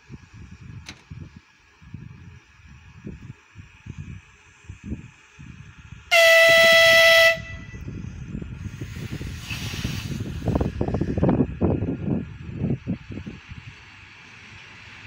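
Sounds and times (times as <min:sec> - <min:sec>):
train wheels rumbling on rails: 0:00.0 - 0:15.0
train horn blast: 0:06.1 - 0:07.9.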